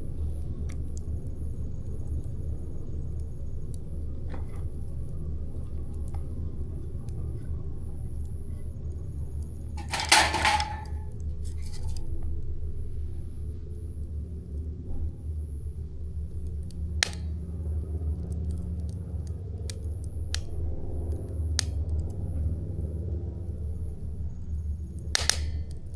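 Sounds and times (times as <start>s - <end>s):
campfire crackling: 0.6s - 12.0s, 18.0s - 25.9s
jangling clatter: 9.8s - 11.0s.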